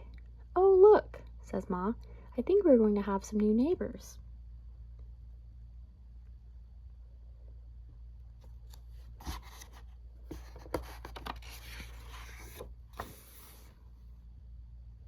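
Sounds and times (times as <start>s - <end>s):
low steady hum: 0.0s - 15.0s
paper pages rustling and turning: 8.4s - 13.8s.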